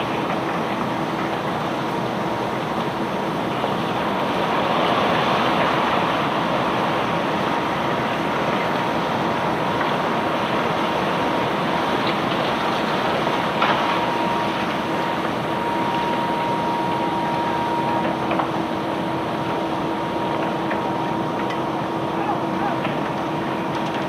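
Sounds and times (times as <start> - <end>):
machinery whining: 13.3 - 23.8.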